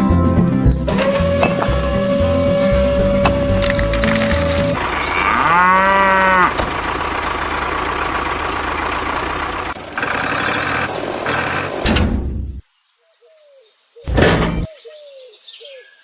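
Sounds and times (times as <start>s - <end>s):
cow mooing: 4.8s - 6.6s.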